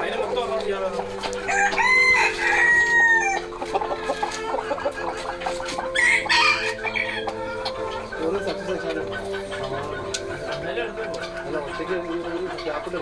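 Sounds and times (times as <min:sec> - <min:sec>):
rooster crowing: 0:01.5 - 0:03.4, 0:06.0 - 0:07.6.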